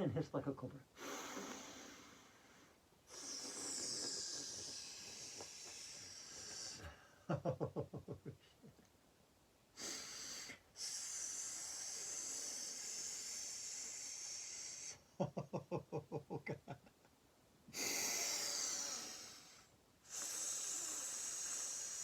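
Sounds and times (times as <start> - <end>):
woman hissing like a snake: 1.0 - 2.4, 3.1 - 6.9, 9.8 - 15.1, 17.8 - 22.0
sharp breath in: 1.0 - 7.2, 9.8 - 15.0, 17.8 - 22.0
woman giggling: 7.3 - 8.8, 15.2 - 17.0.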